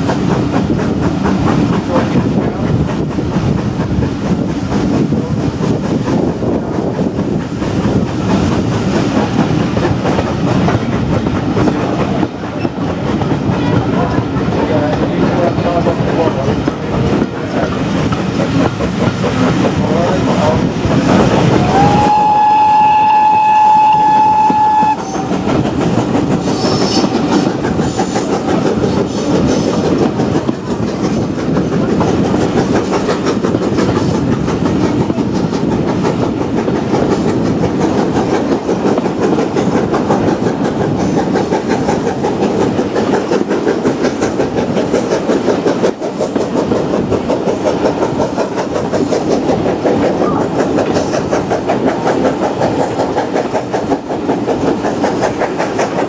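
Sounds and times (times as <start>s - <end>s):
train wheels clacking on rails: 0.0s - 56.0s
steam locomotive whistle: 21.6s - 25.5s.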